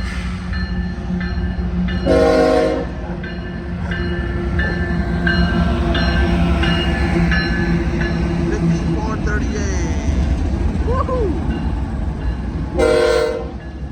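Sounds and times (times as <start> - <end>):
locomotive engine rumbling: 0.0 - 13.9
locomotive horn blast: 2.0 - 3.1, 12.7 - 13.6.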